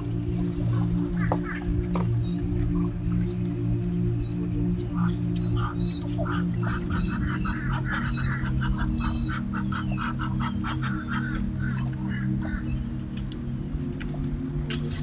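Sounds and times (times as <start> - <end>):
water bird honking: 0.6 - 3.0, 4.1 - 13.0.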